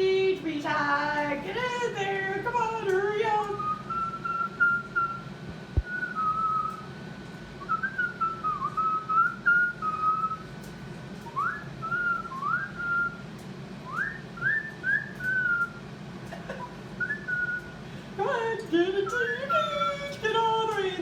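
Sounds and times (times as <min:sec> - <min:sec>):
person whistling: 0:03.6 - 0:06.9, 0:07.6 - 0:10.5, 0:11.3 - 0:13.2, 0:13.9 - 0:15.8, 0:17.0 - 0:17.8, 0:19.3 - 0:20.4.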